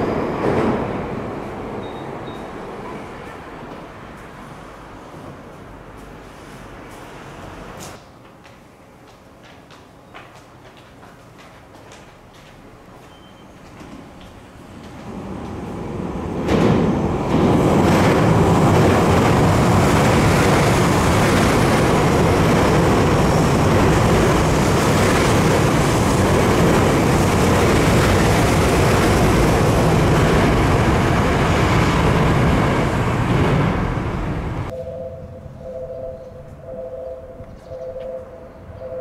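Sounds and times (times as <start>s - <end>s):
train wheels rumbling on rail: 10.6s - 34.7s.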